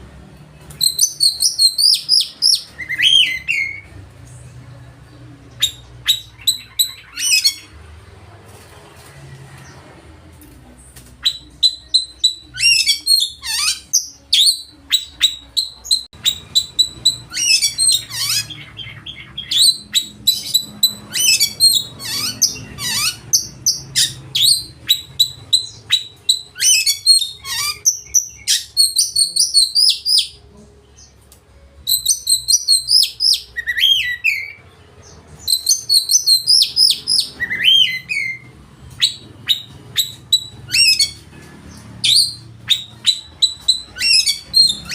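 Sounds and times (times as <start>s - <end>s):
songbird singing whistles and trills: 0.7s - 4.0s, 5.5s - 7.7s, 11.2s - 30.4s, 31.8s - 41.2s, 42.0s - 44.9s.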